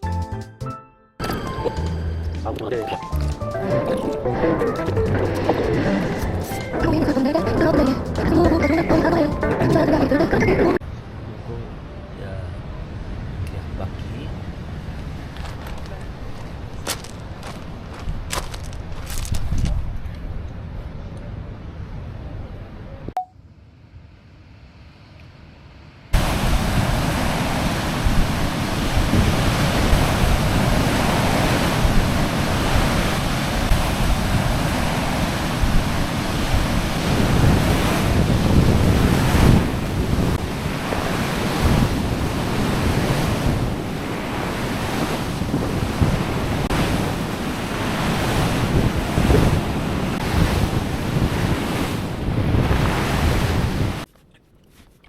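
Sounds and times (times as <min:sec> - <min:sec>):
sea waves breaking on shore: 0:26.2 - 0:54.1
wind buffeting microphone: 0:26.2 - 0:54.1.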